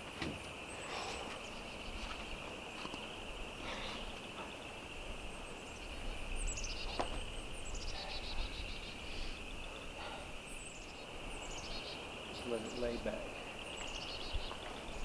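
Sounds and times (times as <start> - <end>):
songbird calling: 0.0 - 15.0
high-pitched hiss: 0.7 - 15.0.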